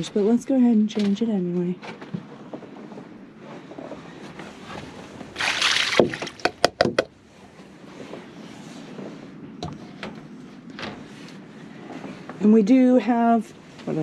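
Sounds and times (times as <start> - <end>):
water splashing out of bowl: 5.4 - 6.5.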